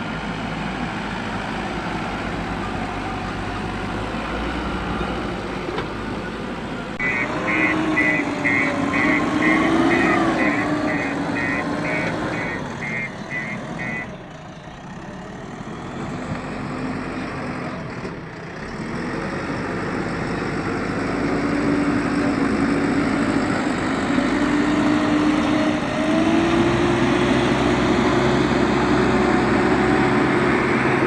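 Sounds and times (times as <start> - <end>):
engine whine: 0.0 - 14.4
diesel engine revving: 0.0 - 31.0.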